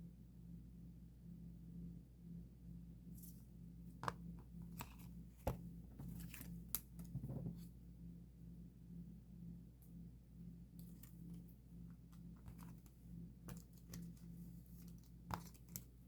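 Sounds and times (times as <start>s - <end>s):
small objects clicking and scraping: 12.4s - 12.9s, 13.5s - 15.9s.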